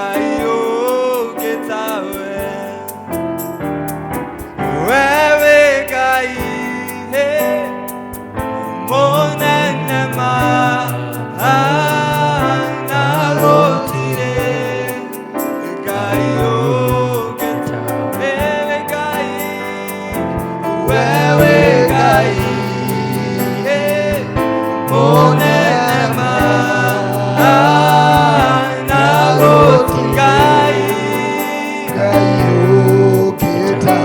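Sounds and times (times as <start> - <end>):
voices singing: 4.7 - 34.0
steady drum beat: 6.4 - 34.0
bass line: 20.4 - 30.8.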